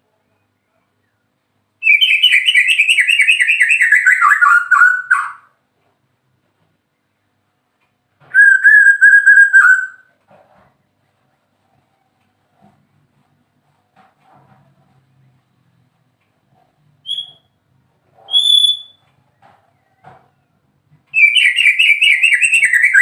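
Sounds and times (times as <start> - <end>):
bird singing trilled phrases: 1.8 - 5.4, 8.4 - 10.0, 17.0 - 17.5, 18.3 - 19.0, 21.2 - 23.0.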